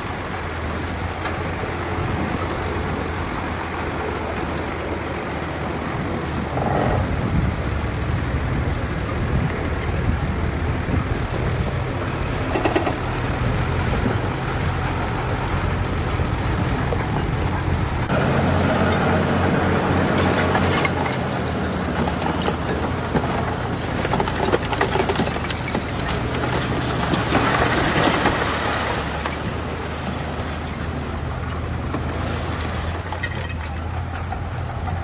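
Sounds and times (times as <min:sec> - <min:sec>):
diesel engine droning: 0:00.0 - 0:35.0
clanking steel tracks: 0:11.3 - 0:32.3.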